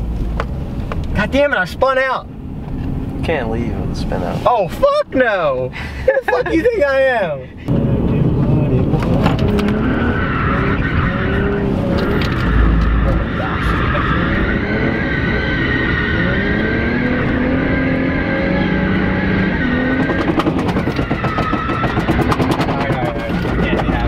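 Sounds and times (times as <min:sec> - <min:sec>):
car engine revving: 0:06.6 - 0:24.0
tyres squealing: 0:09.0 - 0:24.0.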